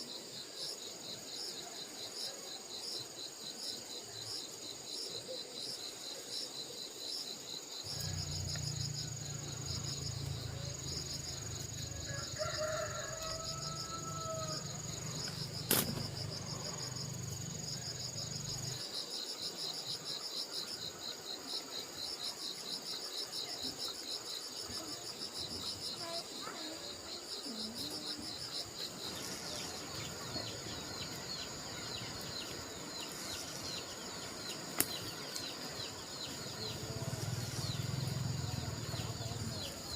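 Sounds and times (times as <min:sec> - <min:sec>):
crickets chirping: 0:00.0 - 0:39.9
high insect trill: 0:00.0 - 0:39.9
faint rooster crow: 0:11.7 - 0:15.0.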